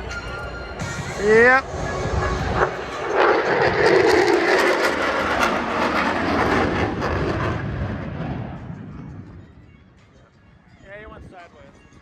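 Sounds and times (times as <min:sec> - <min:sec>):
jet flyby roar: 0:00.7 - 0:09.7.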